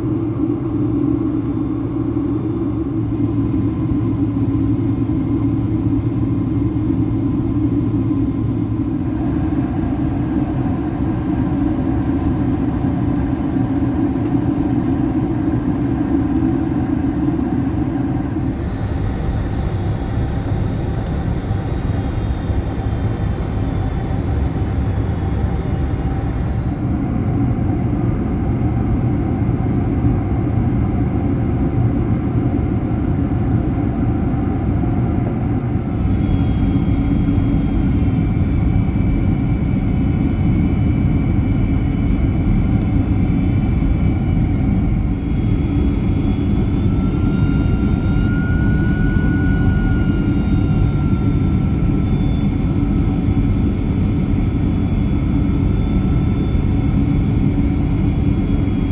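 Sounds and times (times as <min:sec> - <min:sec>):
jet cabin engine rush: 0:00.0 - 0:58.9
thin whining tones: 0:18.3 - 0:28.4, 0:35.8 - 0:38.7, 0:43.8 - 0:58.9.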